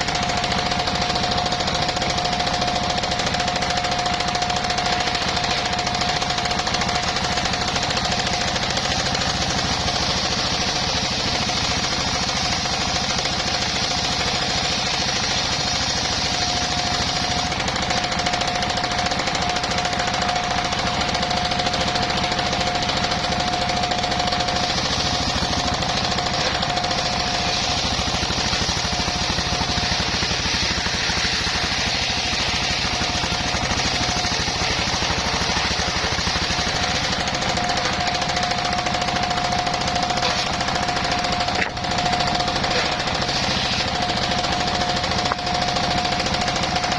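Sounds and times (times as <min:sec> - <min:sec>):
engine chugging: 0:00.0 - 0:46.9
saw blade whine: 0:00.0 - 0:46.9
blade cutting wood hiss: 0:00.1 - 0:46.9.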